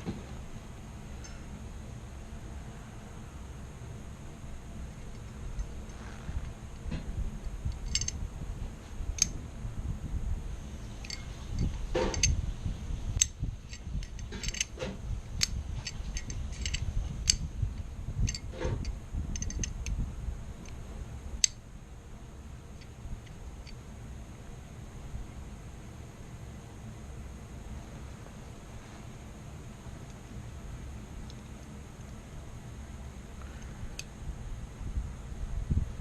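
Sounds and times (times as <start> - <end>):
low rumble: 0.0 - 23.6
rifle parts clicking and tapping: 7.7 - 8.2, 11.0 - 12.3, 13.2 - 17.4, 18.2 - 18.5, 19.3 - 19.9.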